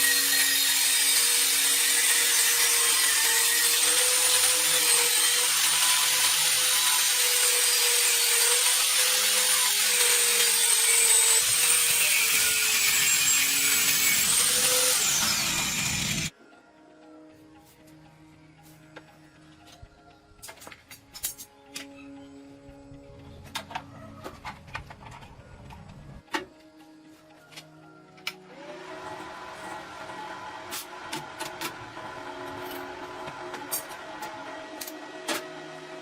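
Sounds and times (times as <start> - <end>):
power tool hissing and whining: 0.0 - 16.3.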